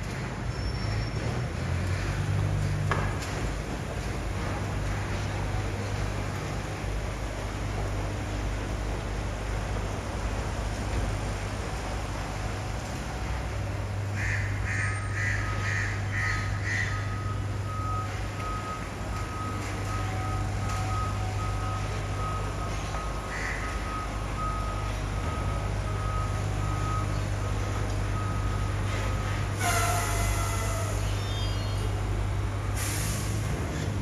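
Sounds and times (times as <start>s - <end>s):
diesel engine humming: 0.0s - 34.0s
reversing alarm beeping: 16.9s - 31.4s.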